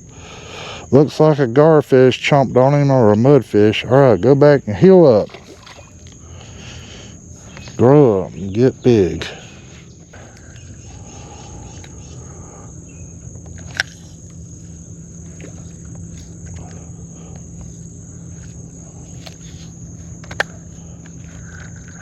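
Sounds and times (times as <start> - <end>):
insects droning: 0.0 - 22.0
low outdoor rumble: 0.0 - 22.0.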